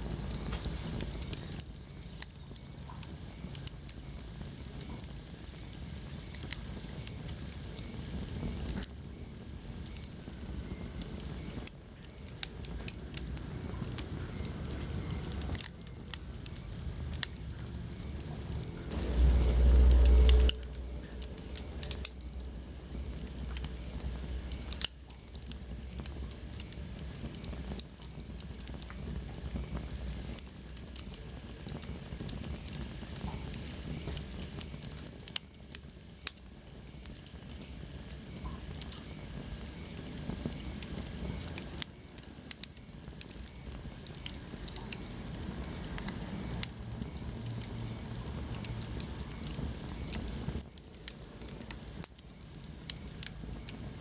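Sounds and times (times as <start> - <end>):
wood fire crackling: 0.0 - 54.0
loud low rumble: 17.7 - 24.1.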